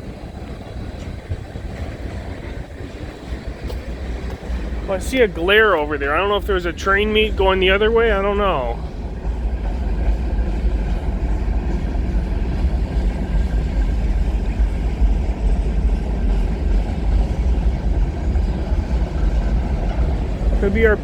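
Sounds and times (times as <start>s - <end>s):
freight train wheels rumbling: 0.0s - 21.0s.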